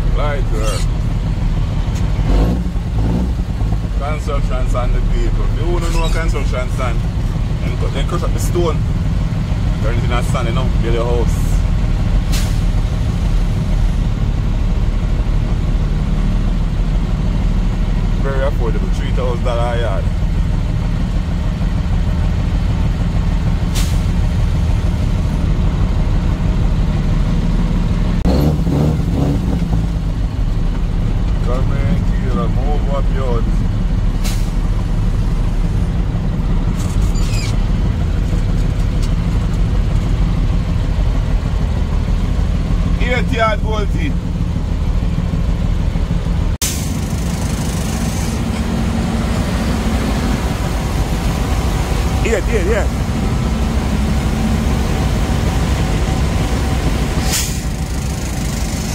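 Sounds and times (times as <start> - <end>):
diesel truck engine rumbling: 0.0 - 58.9
hiss: 57.2 - 58.9.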